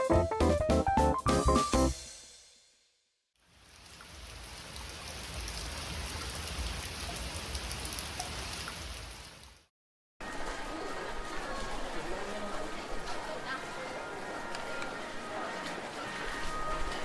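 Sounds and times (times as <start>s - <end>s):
rain pouring: 3.4s - 9.7s.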